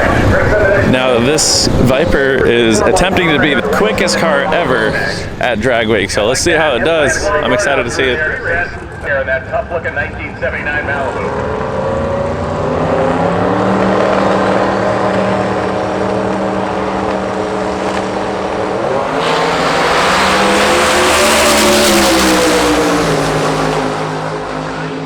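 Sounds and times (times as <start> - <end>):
drag racing car engine revving: 10.4 - 25.0.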